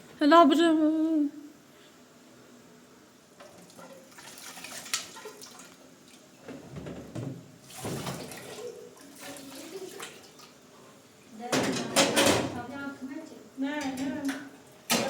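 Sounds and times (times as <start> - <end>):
water running and splashing: 3.4 - 6.4, 7.6 - 10.7.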